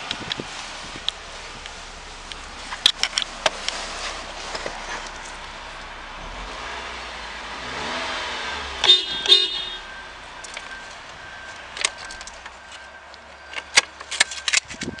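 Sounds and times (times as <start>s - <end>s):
car engine settling to idle: 0.0s - 15.0s
short beeps: 8.8s - 15.0s.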